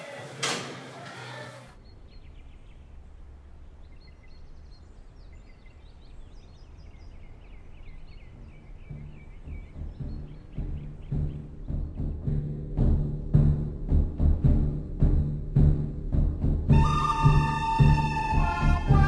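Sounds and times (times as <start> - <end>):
small birds chirping: 1.3 - 12.9
low outdoor rumble: 1.7 - 19.0
low drum-like music: 8.2 - 19.0.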